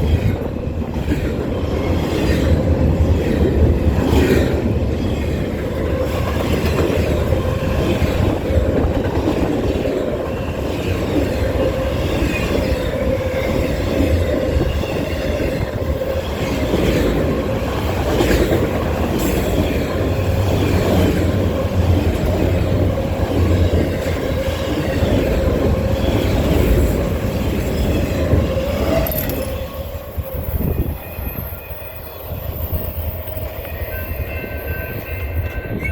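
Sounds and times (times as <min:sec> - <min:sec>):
train wheels rumbling on rails: 0:00.0 - 0:35.9
train wheels squealing: 0:24.1 - 0:35.9.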